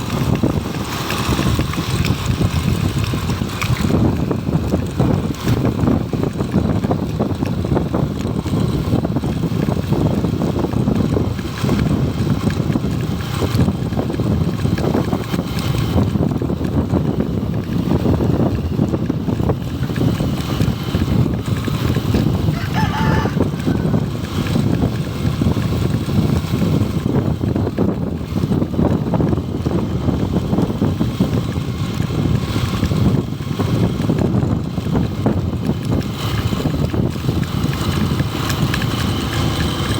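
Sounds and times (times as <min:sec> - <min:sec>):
motorcycle engine running: 0:00.0 - 0:39.9
wind rush on microphone: 0:00.0 - 0:39.9
rooster crowing: 0:22.5 - 0:24.0.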